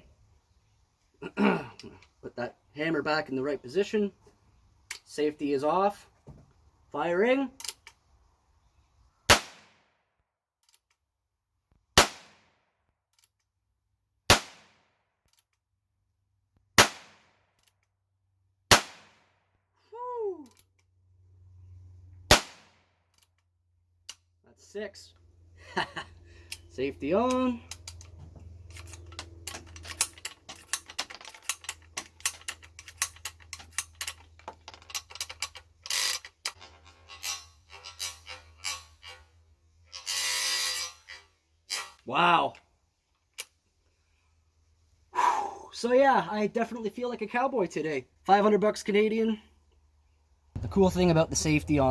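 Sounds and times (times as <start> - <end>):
revolver shots cracking: 9.3 - 9.8, 12.0 - 12.4, 14.3 - 14.8, 16.8 - 17.3, 18.7 - 19.3, 22.3 - 22.8
metallic rattle: 27.6 - 39.2.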